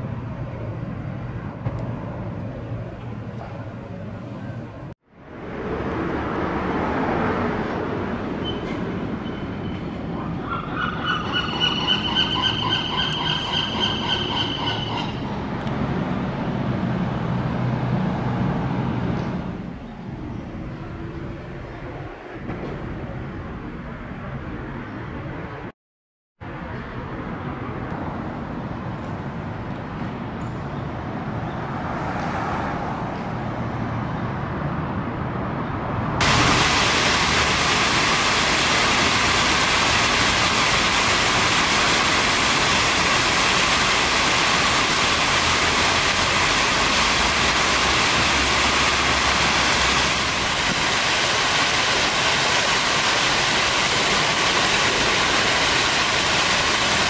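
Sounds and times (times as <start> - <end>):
fountain water splashing: 36.2 - 57.0.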